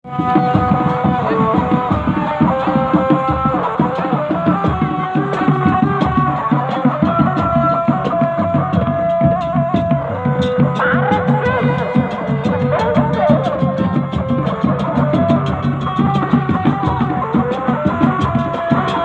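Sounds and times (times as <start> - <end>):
percussion ensemble playing: 0.0 - 19.0
rapid hand drum strokes: 0.0 - 19.0.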